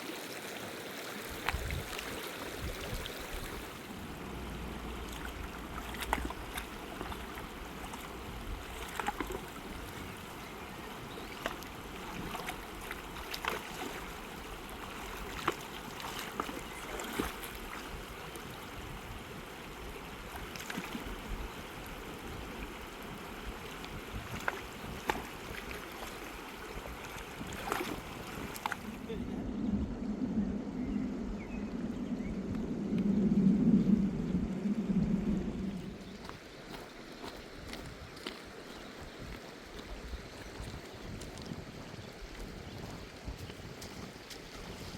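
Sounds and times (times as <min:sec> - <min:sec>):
river rushing: 0:00.0 - 0:19.6
sharp clicks and splashes: 0:01.3 - 0:10.3, 0:10.9 - 0:18.5, 0:20.3 - 0:21.4, 0:23.8 - 0:29.1, 0:35.7 - 0:44.9.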